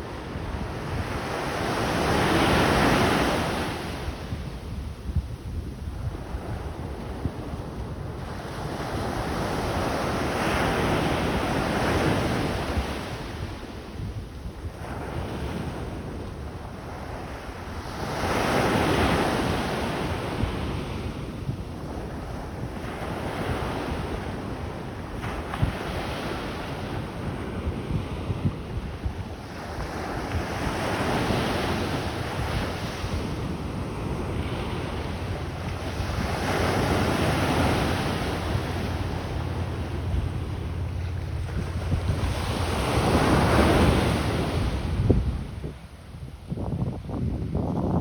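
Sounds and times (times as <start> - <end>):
wind buffeting microphone: 0.0 - 48.0
ocean surf breaking: 29.5 - 46.1.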